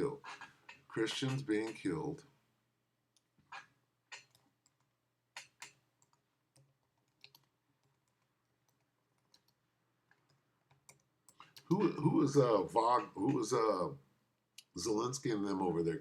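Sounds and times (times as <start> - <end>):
keyboard typing clicks: 4.1 - 11.7.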